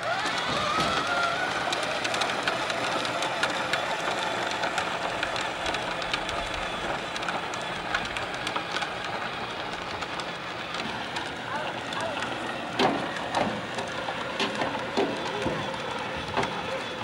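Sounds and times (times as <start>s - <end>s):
gears clicking rapidly: 0.0s - 17.0s
toy electric motor whirring: 0.0s - 17.0s.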